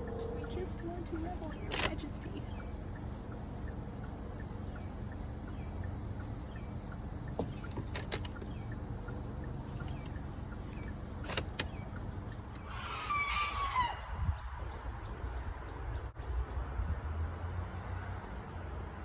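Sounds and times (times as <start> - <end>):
car idling from inside cabin: 0.0 - 12.6.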